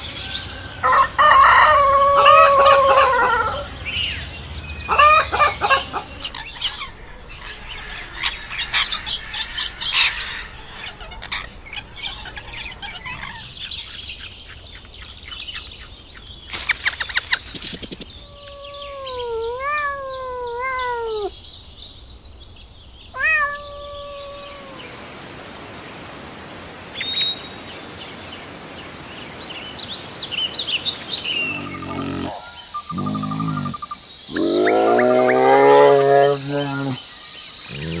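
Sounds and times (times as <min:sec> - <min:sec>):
drawn-out wavering animal calls: 0:00.5 - 0:04.0, 0:04.9 - 0:06.9, 0:18.0 - 0:21.3, 0:23.2 - 0:25.3, 0:31.3 - 0:37.0
bird chirps: 0:01.8 - 0:25.2, 0:26.4 - 0:28.3, 0:29.3 - 0:38.0.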